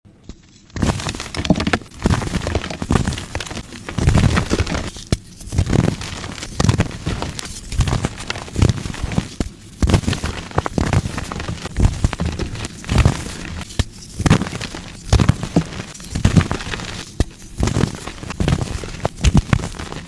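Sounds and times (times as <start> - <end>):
chalk being crushed: 0.7 - 20.0.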